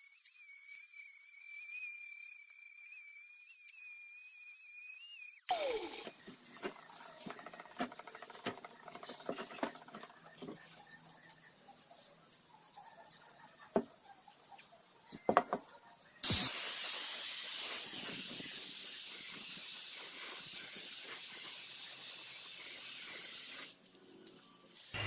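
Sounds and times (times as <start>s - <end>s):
pressurised spray hiss: 16.2s - 23.8s.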